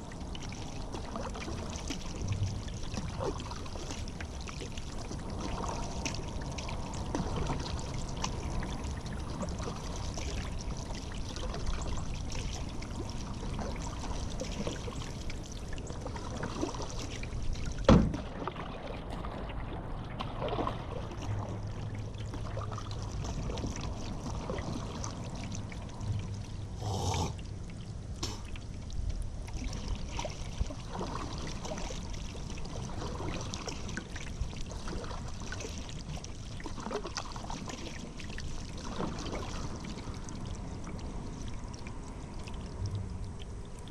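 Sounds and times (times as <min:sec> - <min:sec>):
paddle strokes in water: 0:00.0 - 0:43.9.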